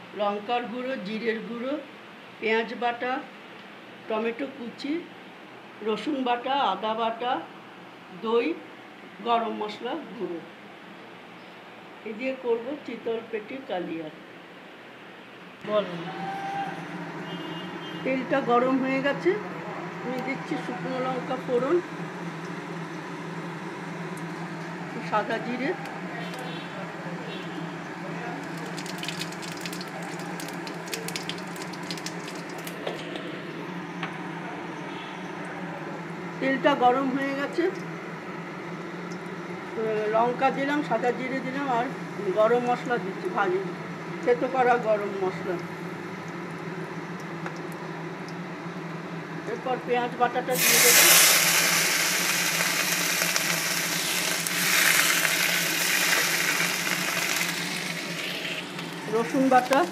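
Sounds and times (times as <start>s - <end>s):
spices sizzling in hot oil: 27.8s - 32.8s, 50.5s - 59.9s.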